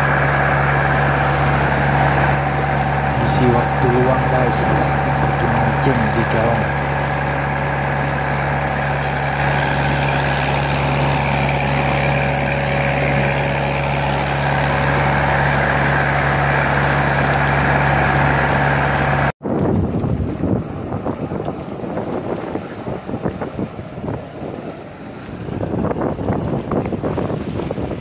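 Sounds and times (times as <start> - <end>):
motorboat engine running: 0.0 - 28.0
sea: 0.0 - 28.0
water rushing in wake: 0.0 - 28.0
wind buffeting microphone: 19.4 - 28.0.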